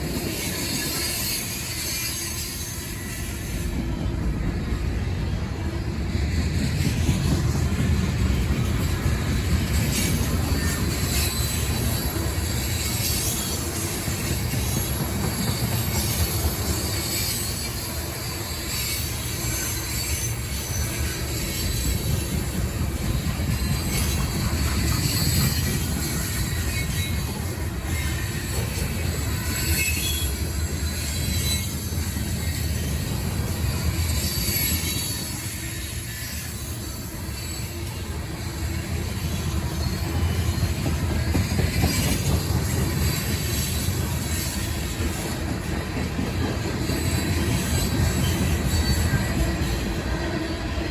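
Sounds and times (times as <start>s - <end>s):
freight train rumble: 0.0s - 50.9s
high-pitched wheel squeal: 23.2s - 32.7s, 33.6s - 45.0s, 46.9s - 50.8s.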